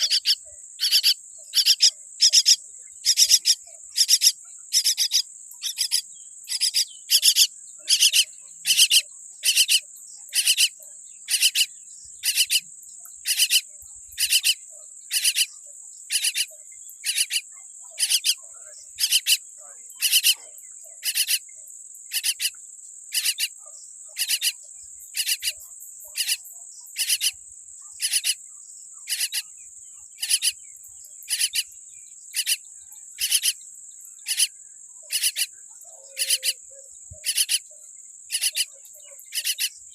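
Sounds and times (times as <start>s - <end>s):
bird chick harsh raspy calls: 0.0s - 12.6s, 13.2s - 15.5s, 16.1s - 18.4s, 19.0s - 19.4s, 20.0s - 20.4s, 21.0s - 21.4s, 22.1s - 23.5s, 24.2s - 24.6s, 25.2s - 25.6s, 26.2s - 26.4s, 27.0s - 27.4s, 28.0s - 28.4s, 29.1s - 29.5s, 30.2s - 30.6s, 31.2s - 31.7s, 32.3s - 32.6s, 33.2s - 33.6s, 34.2s - 37.6s, 38.3s - 38.7s, 39.3s - 39.7s.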